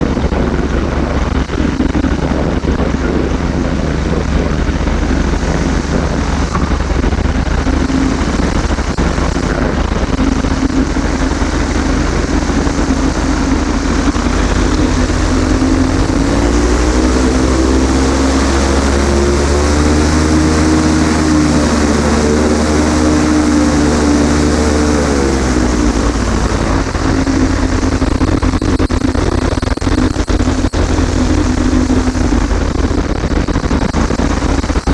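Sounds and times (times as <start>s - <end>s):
microlight engine and propeller: 0.0s - 34.9s
wind noise: 0.0s - 34.9s.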